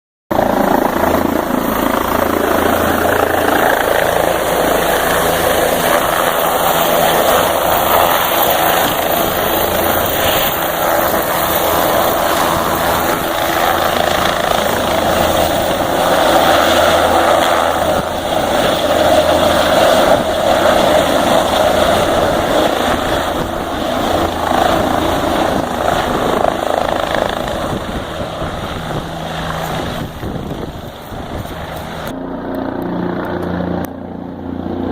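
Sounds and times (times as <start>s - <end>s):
helicopter drone: 0.3s - 34.9s.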